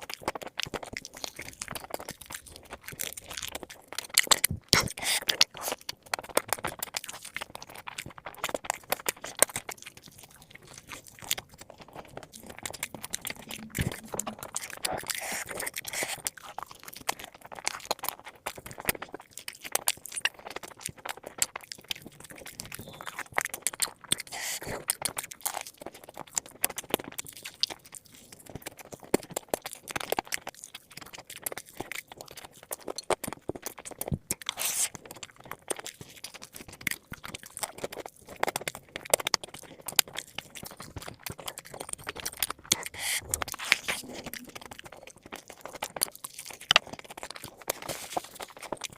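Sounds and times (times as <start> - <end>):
crunching and chewing fried chicken: 0.0 - 48.9.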